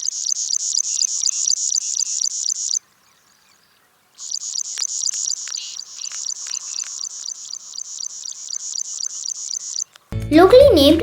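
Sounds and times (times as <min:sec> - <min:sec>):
bird calling repeated high notes: 0:00.0 - 0:02.9, 0:04.2 - 0:10.0.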